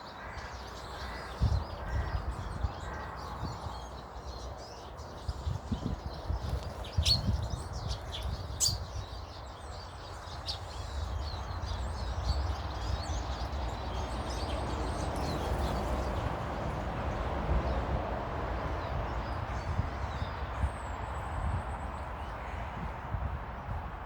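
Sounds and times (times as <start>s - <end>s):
small birds chirping: 0.0s - 16.6s.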